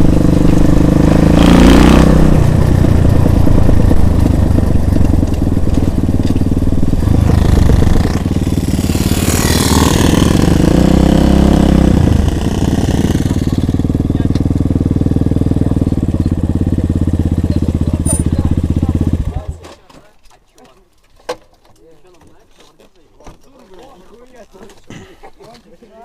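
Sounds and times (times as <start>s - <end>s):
motorcycle engine running: 0.0s - 19.7s.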